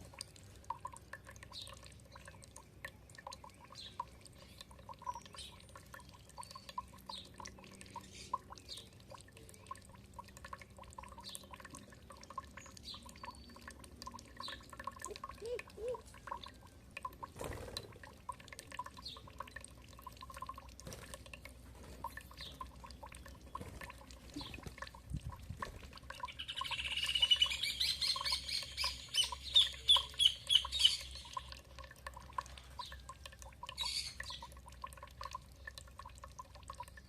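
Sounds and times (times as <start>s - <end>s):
water dripping and trickling: 0.0s - 37.0s
songbird chirping: 26.2s - 31.6s.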